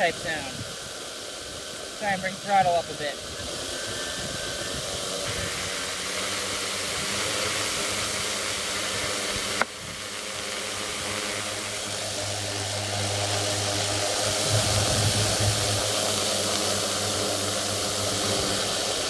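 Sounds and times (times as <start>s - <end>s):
drone propellers whirring: 0.0s - 19.0s.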